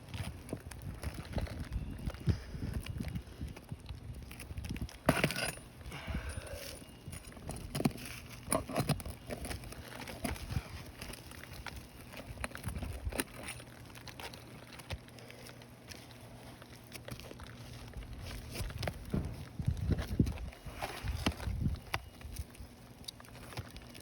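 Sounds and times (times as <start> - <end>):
bar prying and scraping shingles: 5.0 - 5.7.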